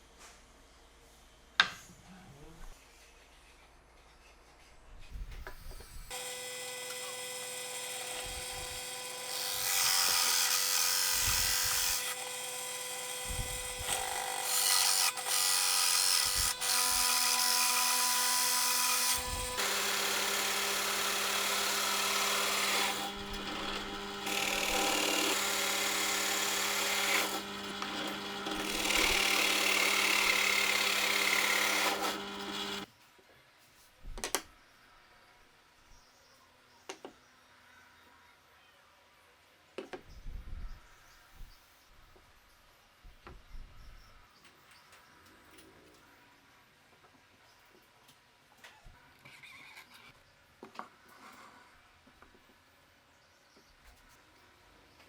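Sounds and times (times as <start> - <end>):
power tool cutting wood: 5.5 - 32.9.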